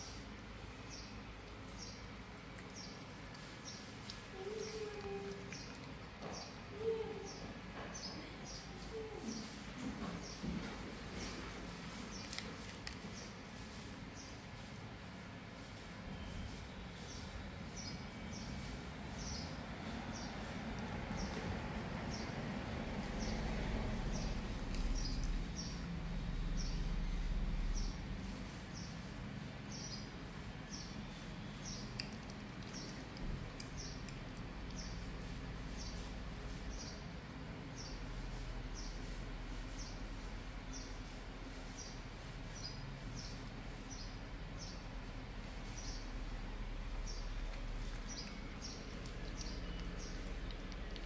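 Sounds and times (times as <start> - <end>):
small bird chirping: 47.0 - 51.0.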